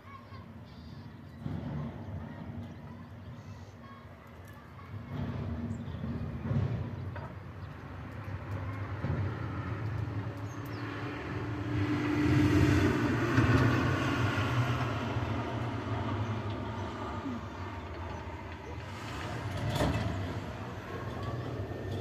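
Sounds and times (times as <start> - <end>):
passing vehicle engine rumble: 4.9 - 22.0.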